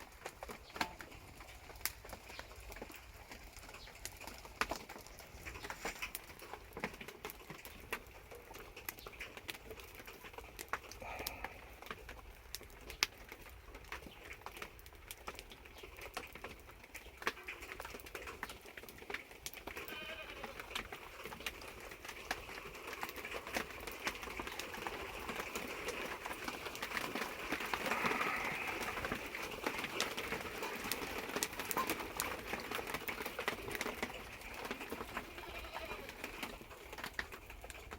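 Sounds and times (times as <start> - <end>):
light rain hiss: 0.0 - 37.9
wood fire crackling: 0.0 - 37.9
animal calling: 27.6 - 29.4.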